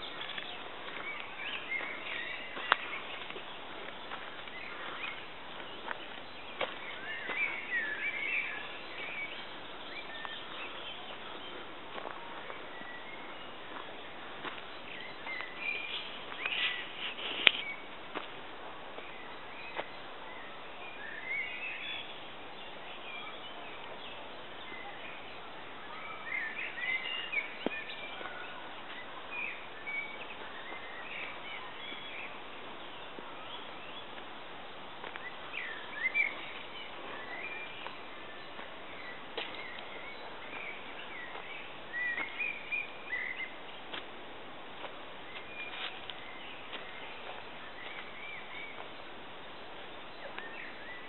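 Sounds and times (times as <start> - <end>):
songbirds chirping and singing: 0.0 - 18.2, 19.0 - 34.2, 35.0 - 44.0, 45.2 - 51.0
steady hiss: 7.6 - 21.1.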